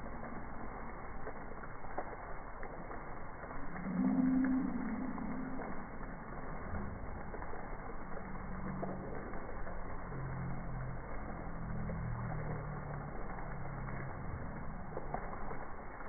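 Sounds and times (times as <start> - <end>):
slowed down rain hiss: 0.0 - 16.0
low wavering tones: 3.4 - 15.8.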